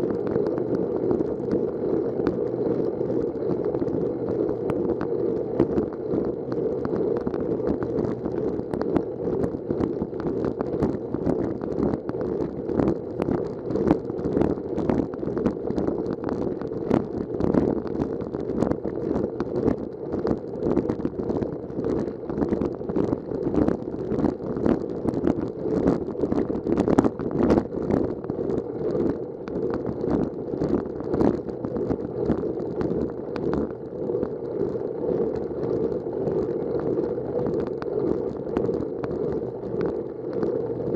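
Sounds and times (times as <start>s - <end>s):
sharp crackles: 0.0s - 40.9s.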